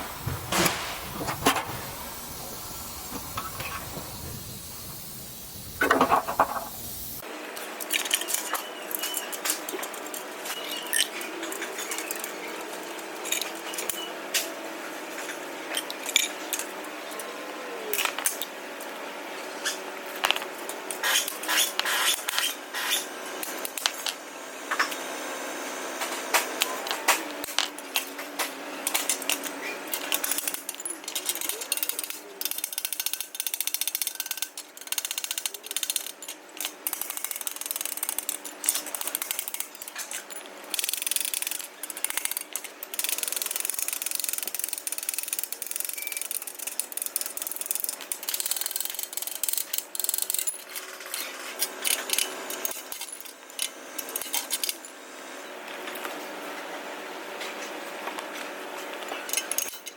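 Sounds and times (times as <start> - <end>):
metal tools clattering: 0.5 - 7.0.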